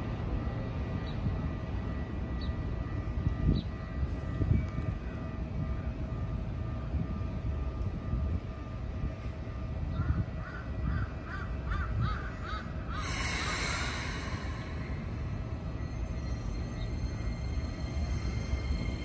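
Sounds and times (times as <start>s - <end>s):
electric train rumbling: 0.0s - 19.0s
faint steady whine: 0.0s - 19.0s
crow cawing: 10.4s - 13.1s.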